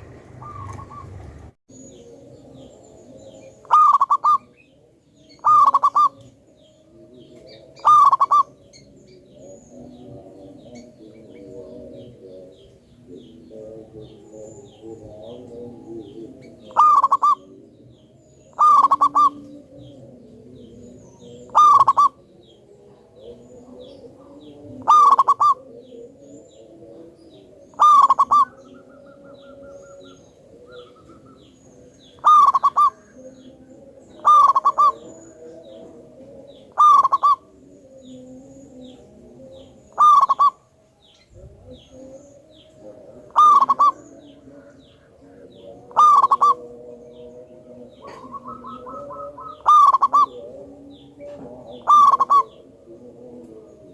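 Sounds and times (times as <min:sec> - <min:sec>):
dove cooing: 0:00.0 - 0:53.9.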